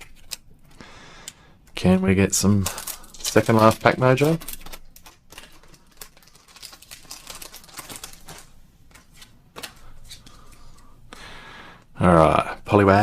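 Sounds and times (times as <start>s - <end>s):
foil wrapper crinkling and tearing: 2.4s - 10.4s.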